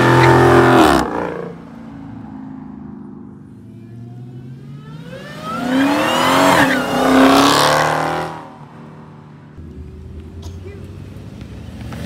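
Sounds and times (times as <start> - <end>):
car accelerating past: 4.0 - 8.6.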